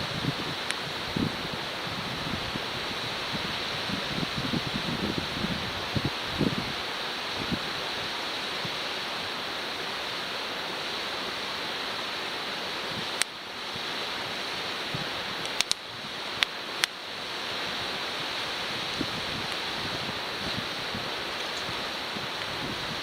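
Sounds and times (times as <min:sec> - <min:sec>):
wood fire hissing: 0:00.0 - 0:23.0
fire cracking pops: 0:15.4 - 0:17.0.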